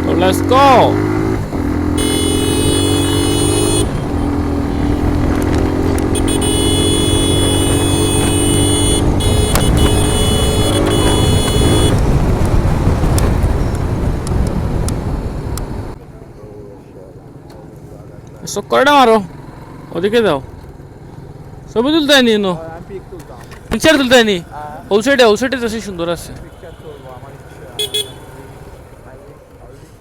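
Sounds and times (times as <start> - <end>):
motorcycle engine running: 0.0 - 16.0, 27.3 - 29.5
road and wind noise: 0.0 - 30.0.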